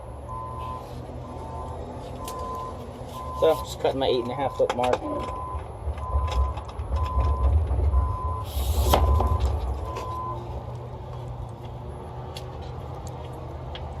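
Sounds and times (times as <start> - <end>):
large engine rumbling: 0.0 - 14.0
reversing beeper: 0.3 - 10.4.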